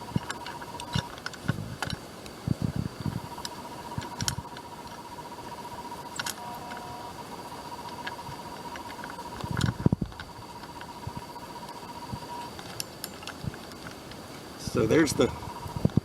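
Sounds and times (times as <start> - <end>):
small metal parts clicking: 0.0 - 2.0, 3.3 - 5.0, 6.0 - 7.0, 7.8 - 14.2
faint steady high tone: 2.8 - 13.4, 14.3 - 15.9.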